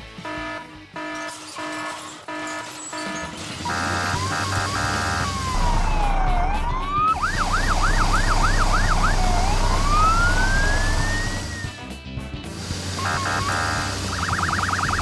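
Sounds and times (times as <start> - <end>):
siren wailing and yelping: 0.4 - 11.8, 13.0 - 15.0
pulsing electronic tones: 2.9 - 11.8, 12.6 - 15.0.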